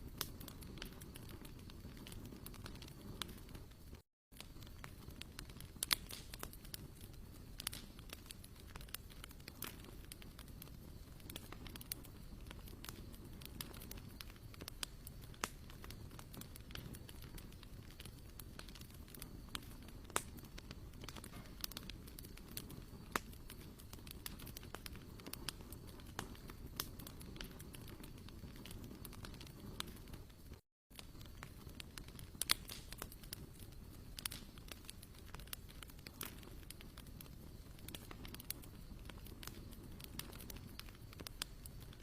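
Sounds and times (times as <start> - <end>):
campfire crackling and popping: 0.0 - 42.0.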